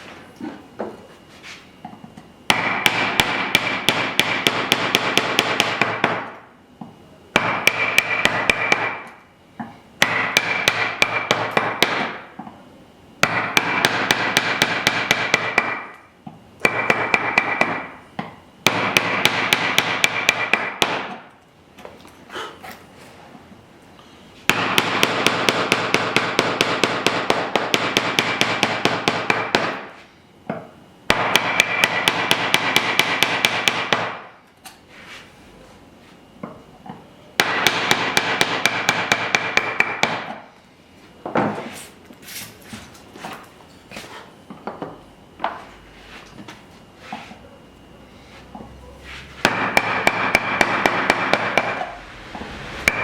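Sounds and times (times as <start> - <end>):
hammer tapping chisel into wood: 7.4 - 12.2, 16.6 - 21.2.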